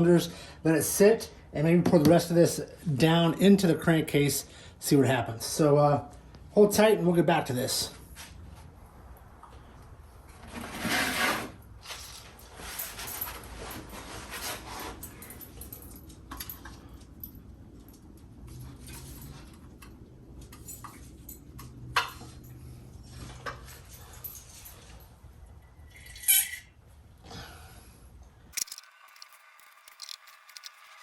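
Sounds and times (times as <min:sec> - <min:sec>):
rubbing and scraping handling noise: 0:10.3 - 0:15.9.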